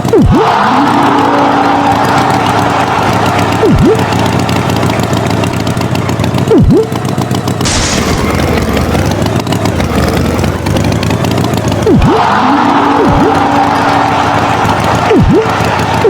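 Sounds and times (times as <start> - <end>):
cartoon rattling engine: 0.0 - 16.0
swooping sound effect: 1.9 - 5.6, 6.5 - 6.9, 11.8 - 16.0
hiss burst: 7.6 - 9.0.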